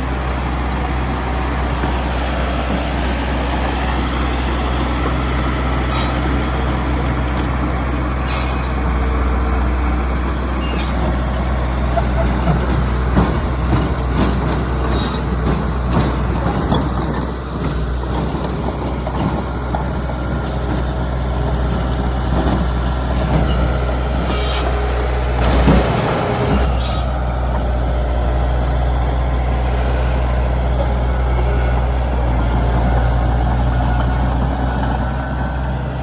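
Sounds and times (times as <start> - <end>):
bulldozer diesel engine running: 0.0 - 36.0
metallic clanks and knocks: 11.9 - 24.5, 25.4 - 27.7.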